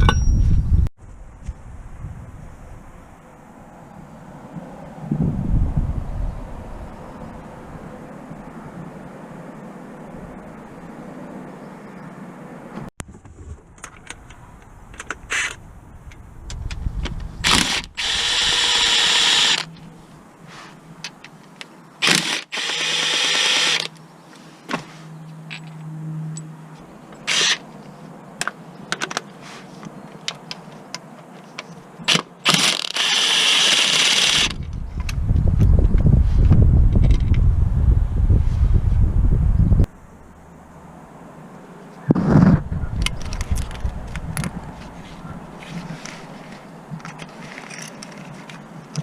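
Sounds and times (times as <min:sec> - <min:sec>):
power tool running: 0:17.4 - 0:19.7, 0:22.0 - 0:23.9, 0:32.5 - 0:34.6.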